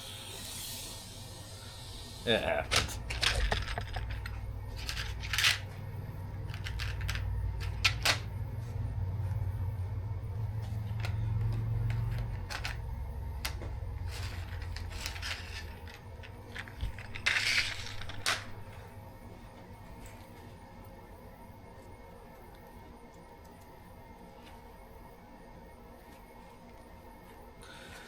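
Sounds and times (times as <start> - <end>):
short hiss: 0.0 - 2.3
welder humming: 0.0 - 3.5.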